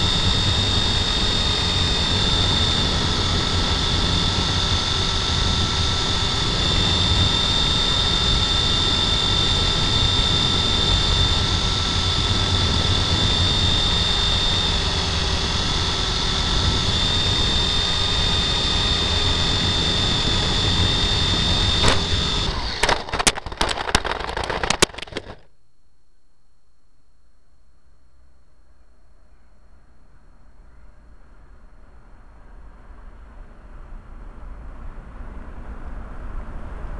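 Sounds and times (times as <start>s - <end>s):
model helicopter motor whine: 0.0s - 25.4s
sharp knocks and clatter: 22.7s - 25.4s.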